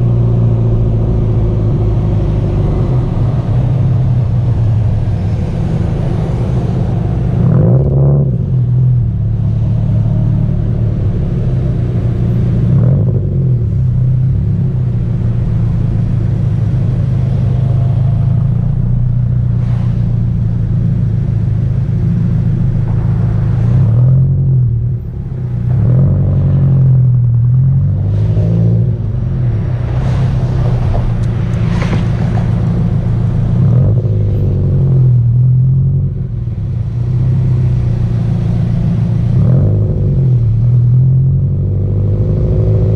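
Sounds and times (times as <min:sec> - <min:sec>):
car engine exhaust accelerating: 0:00.0 - 0:42.9
road rumble: 0:00.0 - 0:42.9.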